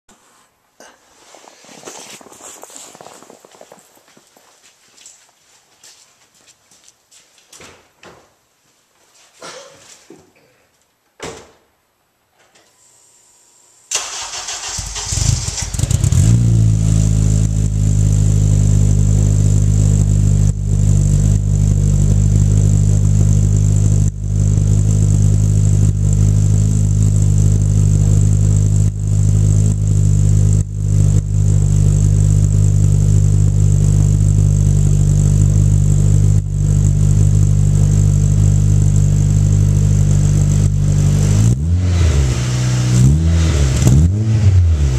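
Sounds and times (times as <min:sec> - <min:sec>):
car engine cranking: 0:13.9 - 0:17.8
car engine idling: 0:13.9 - 0:41.4.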